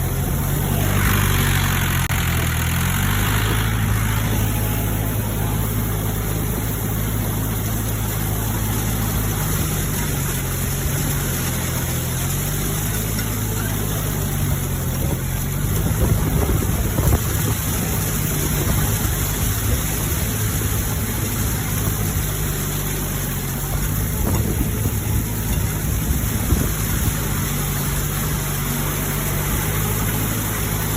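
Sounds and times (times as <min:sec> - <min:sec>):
rotary tiller rushing noise: 0:00.0 - 0:30.9
tractor diesel engine running: 0:00.0 - 0:30.9.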